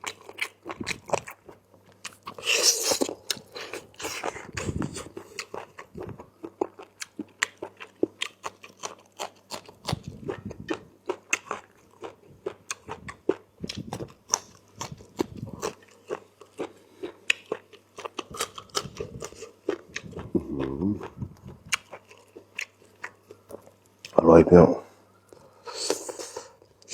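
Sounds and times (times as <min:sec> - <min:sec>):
wet chewing: 0:00.0 - 0:24.2
person humming: 0:20.2 - 0:21.4.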